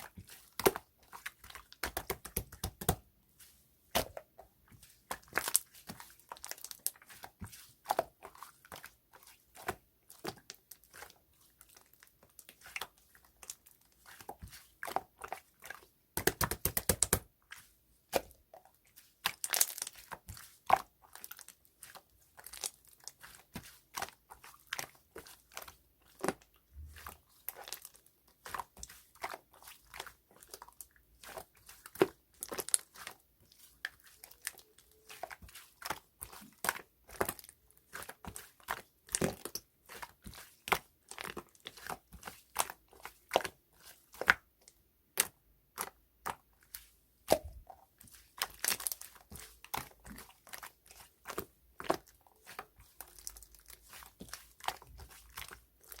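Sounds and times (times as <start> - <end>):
rapid slime crackling: 0.0 - 44.5, 45.1 - 56.0
slime clicking and popping: 16.2 - 17.2.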